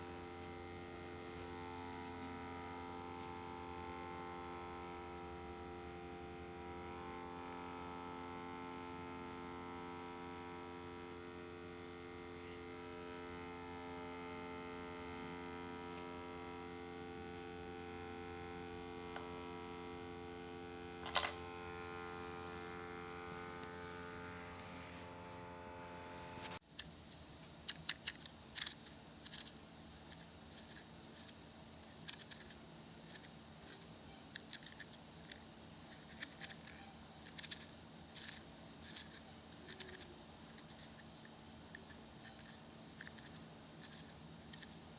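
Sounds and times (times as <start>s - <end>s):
electric motor hum: 0.0s - 26.6s, 27.7s - 44.9s
sharp clicks and crackles: 26.4s - 44.9s.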